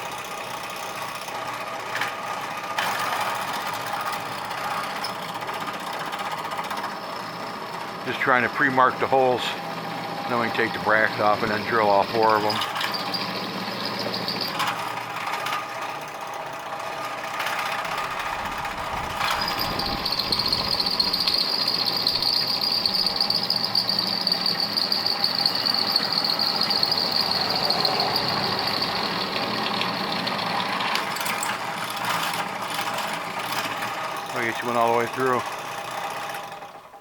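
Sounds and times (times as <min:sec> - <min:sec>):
drill press running: 0:00.0 - 0:37.0
drill bit squealing in metal: 0:06.8 - 0:14.9, 0:18.9 - 0:35.4.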